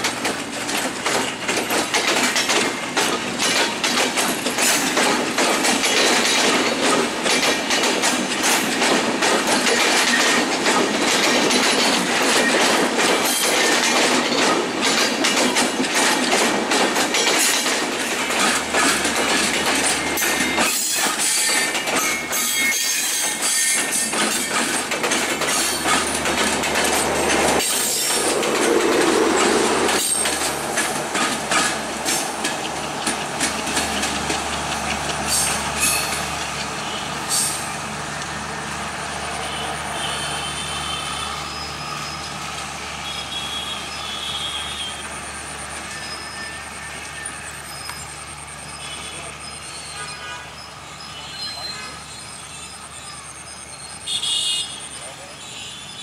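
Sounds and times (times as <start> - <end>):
train wheels clattering over rail joints: 0.0 - 38.4.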